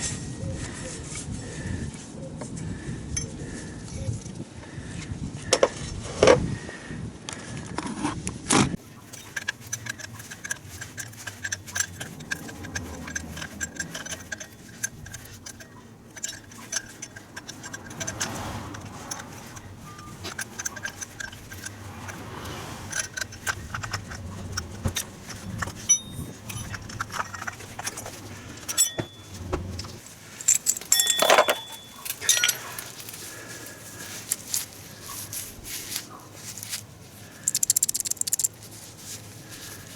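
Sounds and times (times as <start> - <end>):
metal tools clinking: 8.8 - 39.9.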